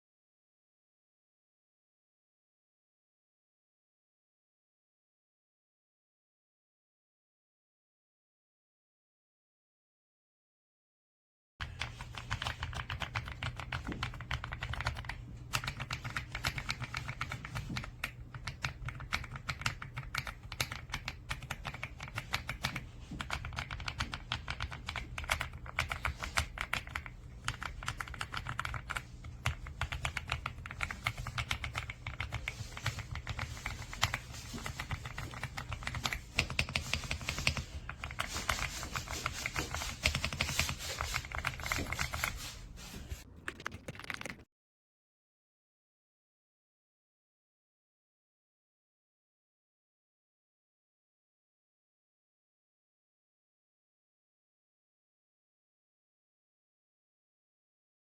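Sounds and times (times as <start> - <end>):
mechanical keyboard typing: 11.6 - 42.4, 43.3 - 44.5.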